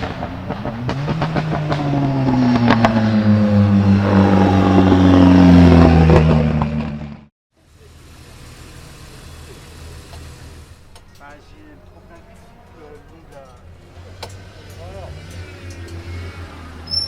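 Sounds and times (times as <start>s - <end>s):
car engine accelerating hard: 0.0s - 7.3s, 12.0s - 17.0s.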